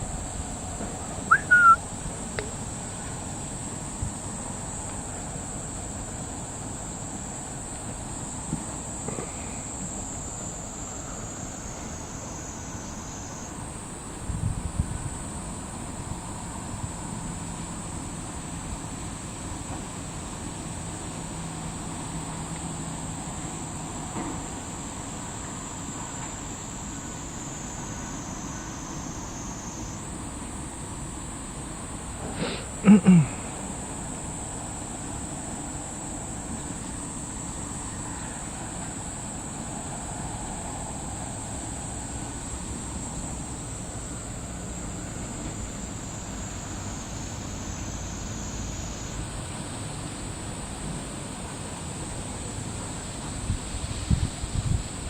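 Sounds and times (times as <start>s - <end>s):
insects buzzing: 0.0s - 55.0s
outdoor background hiss: 0.0s - 55.0s
loud high chirp: 1.3s - 1.8s.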